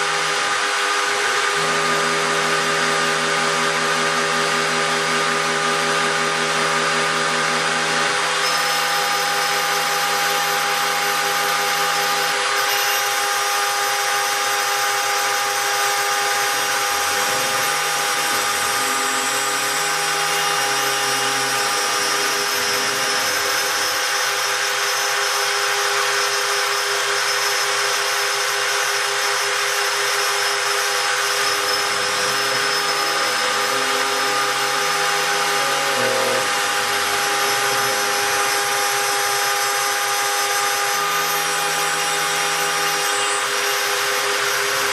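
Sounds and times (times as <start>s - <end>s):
milling spindle high whine: 0.0s - 44.9s
stepping motor tones: 14.1s - 44.9s.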